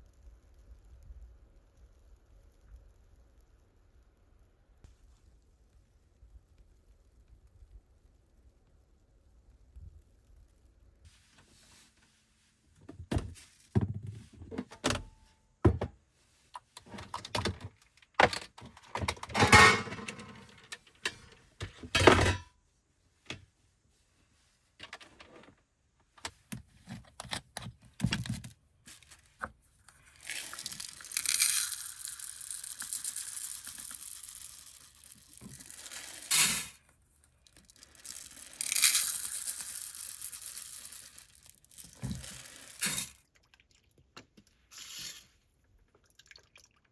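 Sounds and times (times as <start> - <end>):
handling clicks and crinkling: 16.5 - 22.4, 24.8 - 43.3.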